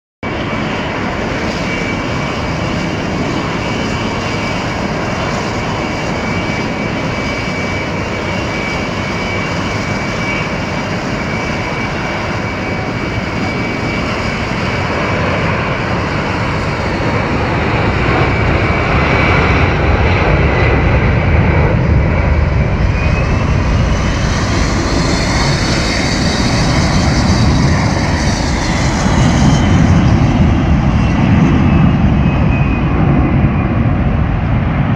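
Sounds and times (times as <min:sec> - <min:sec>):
jet engines running: 0:00.2 - 0:34.9.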